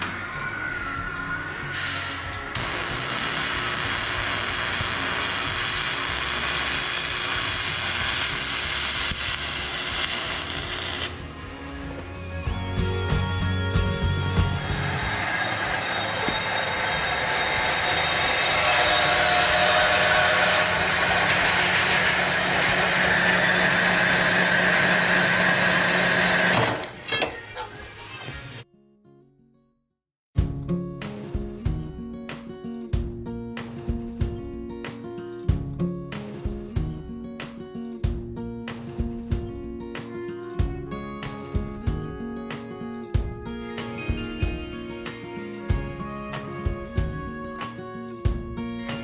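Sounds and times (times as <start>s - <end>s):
welding arc hissing crackle: 1.7s - 11.3s.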